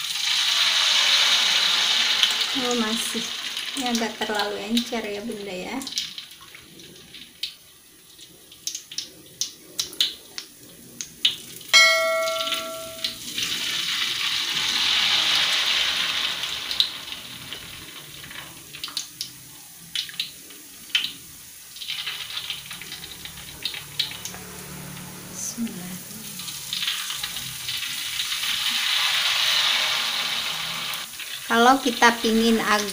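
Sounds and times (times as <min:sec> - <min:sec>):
oil sizzling in a wok: 0:00.0 - 0:32.9
bell chime: 0:11.8 - 0:13.2.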